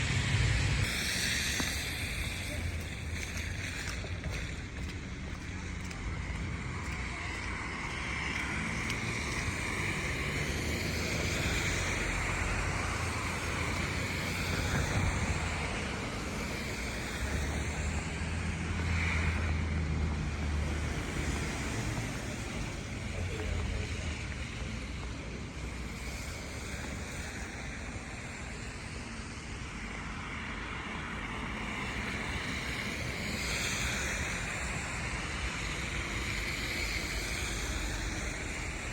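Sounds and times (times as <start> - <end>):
wind hissing: 0.0 - 5.6, 9.2 - 19.5, 31.3 - 38.9
passing traffic: 0.0 - 38.9
vehicle low rumble: 0.0 - 38.9.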